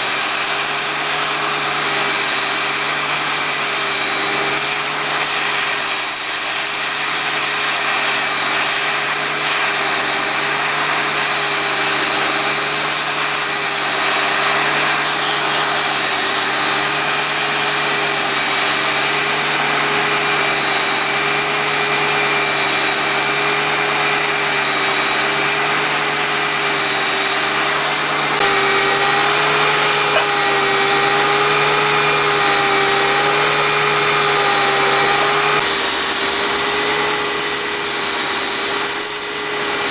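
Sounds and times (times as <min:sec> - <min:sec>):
machine motor humming: 0:11.4 - 0:39.9.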